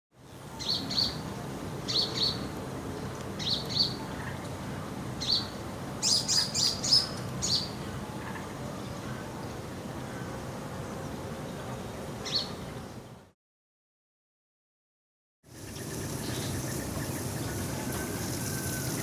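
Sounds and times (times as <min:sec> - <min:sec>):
steady low background noise: 0:00.2 - 0:13.4
sparrow chirping: 0:00.6 - 0:01.2, 0:01.9 - 0:02.5, 0:03.4 - 0:04.4, 0:05.2 - 0:08.4, 0:12.2 - 0:12.6.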